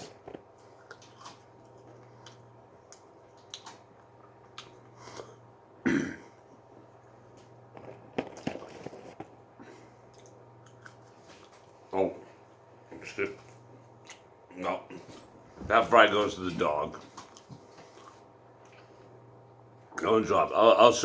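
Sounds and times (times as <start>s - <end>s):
throat-clearing cough: 5.8s - 6.3s
food handling rustles: 7.7s - 9.4s.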